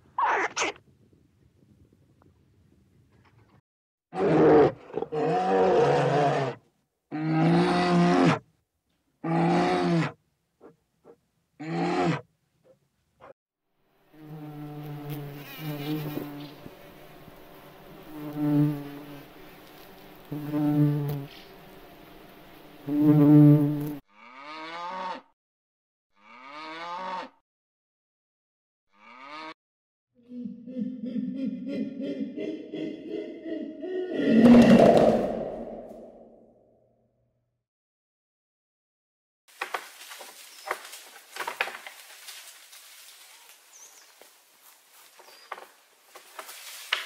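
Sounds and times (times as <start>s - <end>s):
animal making long calls: 0.2s - 0.8s, 30.3s - 36.3s.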